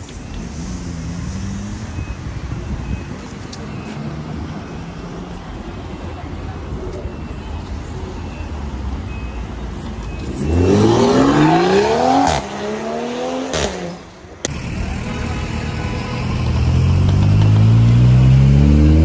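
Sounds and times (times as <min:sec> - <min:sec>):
street traffic noise: 0:00.0 - 0:19.0
car engine accelerating hard: 0:10.3 - 0:19.0.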